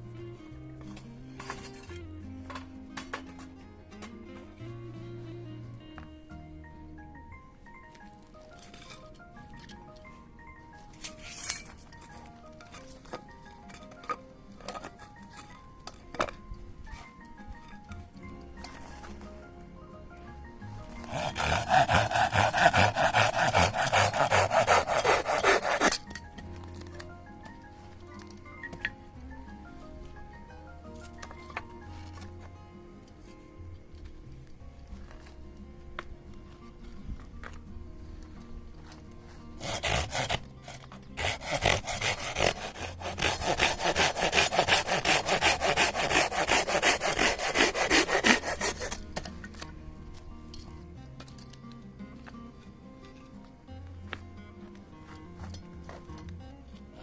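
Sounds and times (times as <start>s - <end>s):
soft background music: 0.0s - 57.0s
rapid scraping strokes: 20.8s - 26.2s, 39.6s - 49.3s
hand saw cutting wood: 20.8s - 26.3s, 39.6s - 49.7s.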